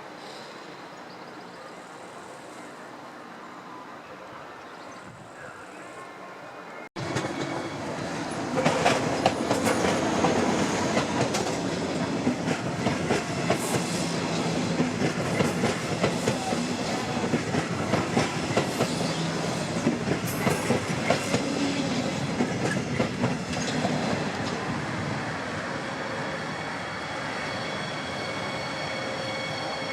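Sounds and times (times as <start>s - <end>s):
train wheels clattering over rails: 7.0s - 24.7s.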